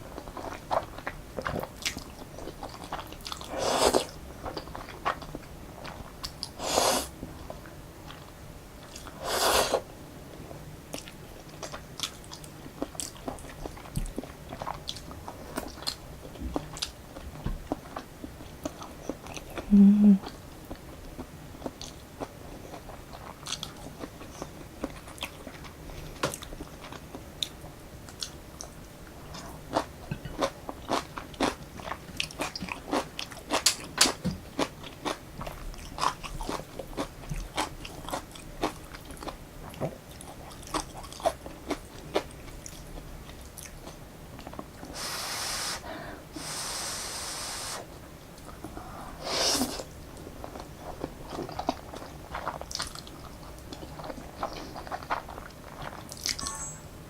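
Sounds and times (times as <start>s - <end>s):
chewing noodles: 0.1s - 9.9s, 20.2s - 25.8s, 26.4s - 44.9s, 48.4s - 56.4s
slurping noodles: 3.5s - 4.1s, 6.6s - 7.1s, 9.2s - 9.8s.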